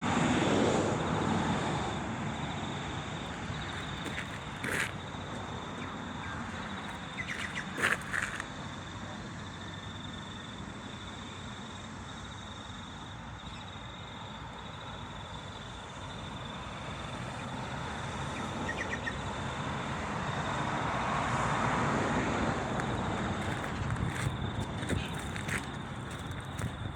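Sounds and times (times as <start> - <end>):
high-pitched insect buzz: 6.8 - 8.4
train rumble: 22.6 - 26.9.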